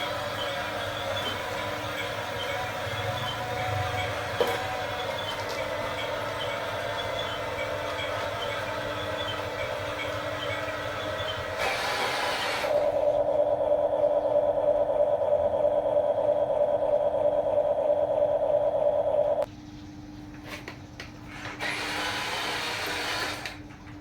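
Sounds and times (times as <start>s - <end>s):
toy gear motors whirring: 0.0s - 13.2s, 21.4s - 23.6s
motor whine: 0.0s - 19.5s.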